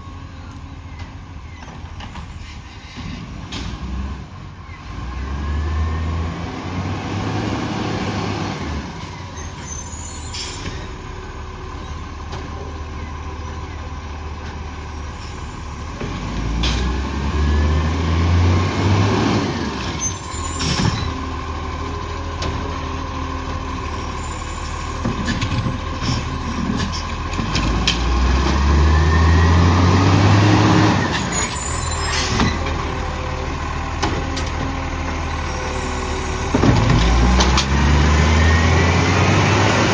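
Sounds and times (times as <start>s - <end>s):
truck diesel engine revving: 3.8s - 9.9s, 10.6s - 39.9s
air brake hisses: 9.2s - 11.0s.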